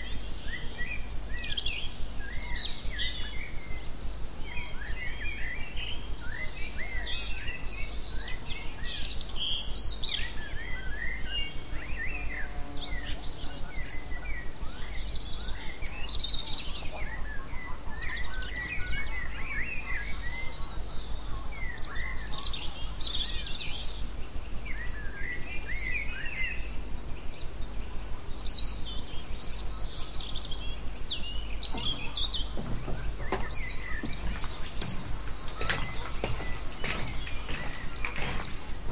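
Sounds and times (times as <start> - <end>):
songbirds chirping and singing: 0.0 - 38.9
steady low hum: 0.0 - 38.9.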